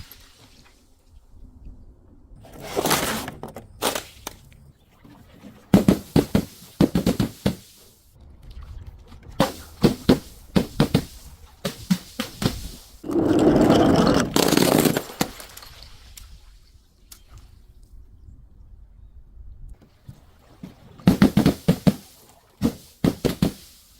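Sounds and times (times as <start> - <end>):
glass breaking: 14.3 - 15.9.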